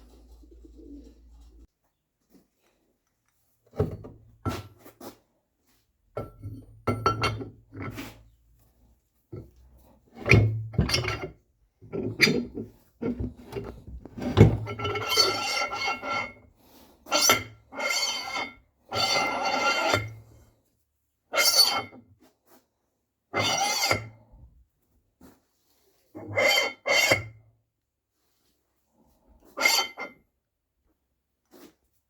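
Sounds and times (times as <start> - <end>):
metal parts scraping and knocking: 11.9 - 16.4.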